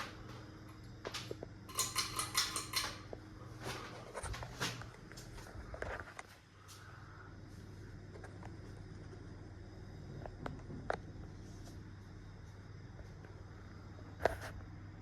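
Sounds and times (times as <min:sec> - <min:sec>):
ceiling fan motor hum: 0:00.0 - 0:15.0
metallic jingling and clinking: 0:01.7 - 0:03.0.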